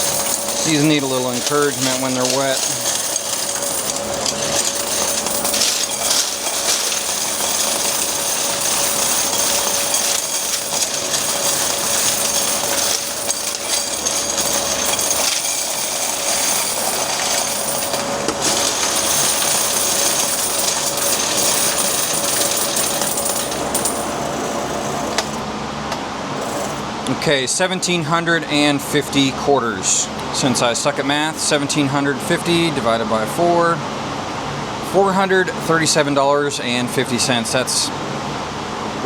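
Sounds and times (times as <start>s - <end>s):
coins clattering through machine: 0.0s - 25.4s, 26.4s - 26.9s.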